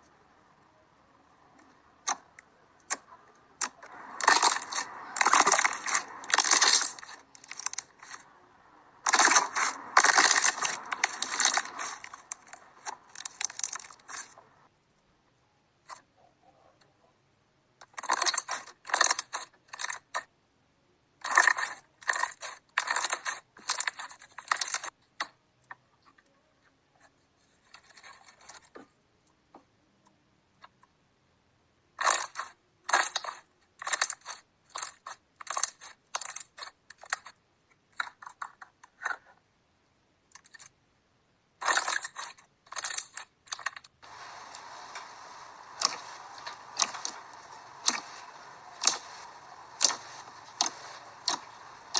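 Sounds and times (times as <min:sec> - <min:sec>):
slime crackling and popping: 0:03.6 - 0:08.3, 0:09.0 - 0:14.5, 0:41.6 - 0:51.9.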